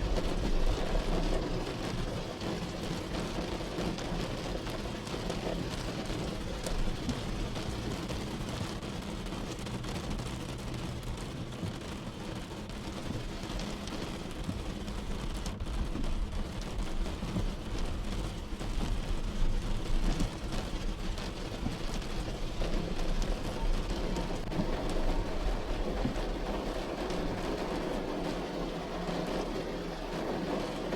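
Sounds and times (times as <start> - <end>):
raindrop ticks: 0.0 - 30.9
steady rain falling: 0.0 - 30.9.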